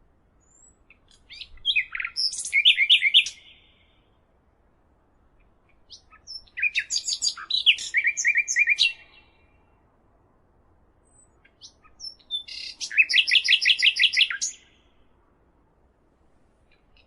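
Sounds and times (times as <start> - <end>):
songbird singing: 0.3 - 10.0, 10.8 - 15.2, 16.6 - 17.0.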